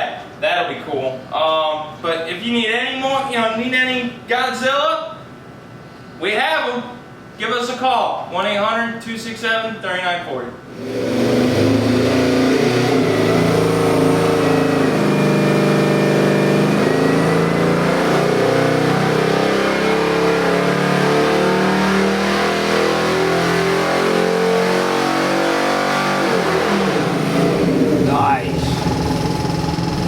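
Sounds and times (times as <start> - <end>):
engine running on a dyno: 10.7 - 30.0.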